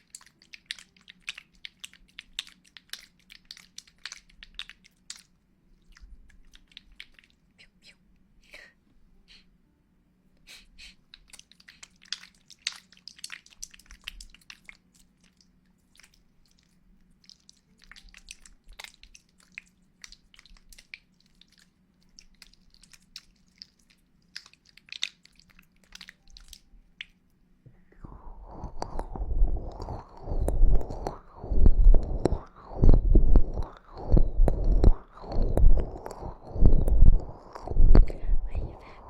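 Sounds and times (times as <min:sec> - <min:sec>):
faint steady hum: 0:00.0 - 0:39.0
quiet clicks and crackles: 0:28.0 - 0:39.0.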